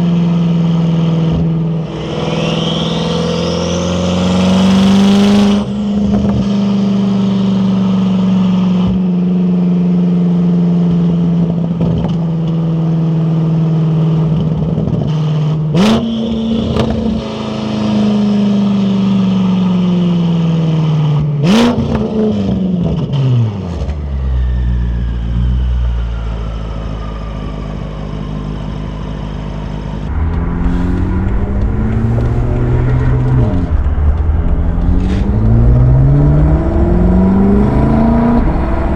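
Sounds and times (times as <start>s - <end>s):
car engine while driving: 0.0s - 38.9s
turbo whistle: 1.9s - 5.6s
exhaust cracks: 21.7s - 38.9s.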